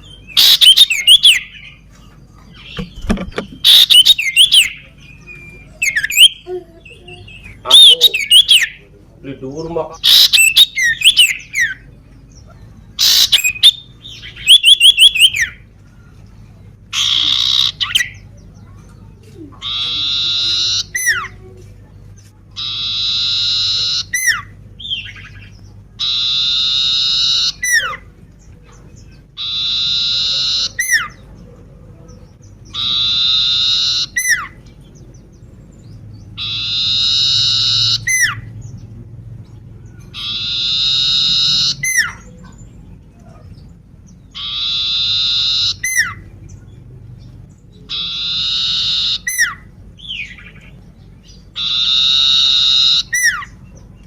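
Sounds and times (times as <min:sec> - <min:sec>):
harsh buzzy bird call: 0:00.0 - 0:01.7, 0:03.0 - 0:04.8, 0:10.0 - 0:11.8, 0:13.0 - 0:15.6, 0:17.0 - 0:18.2, 0:19.6 - 0:21.4, 0:22.6 - 0:24.6, 0:29.4 - 0:31.2, 0:32.7 - 0:34.6, 0:36.4 - 0:38.5, 0:40.2 - 0:42.3, 0:44.3 - 0:46.3, 0:47.9 - 0:50.5, 0:51.5 - 0:53.6
bird chirps and trills: 0:00.0 - 0:54.0.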